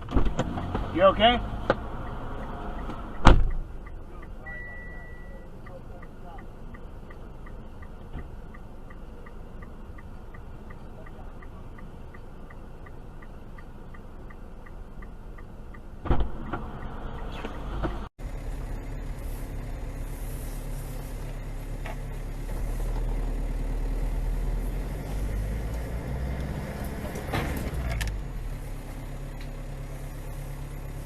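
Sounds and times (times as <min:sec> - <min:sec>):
car road noise rumble: 0:00.0 - 0:31.0
regular ticking: 0:00.3 - 0:18.6.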